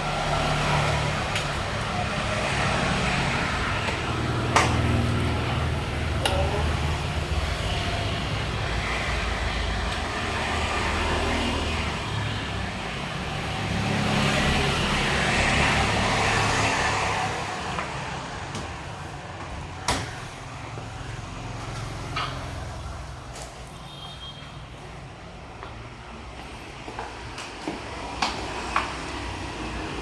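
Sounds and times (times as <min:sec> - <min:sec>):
vehicle passing: 0:00.0 - 0:19.0
road traffic noise: 0:00.0 - 0:30.0.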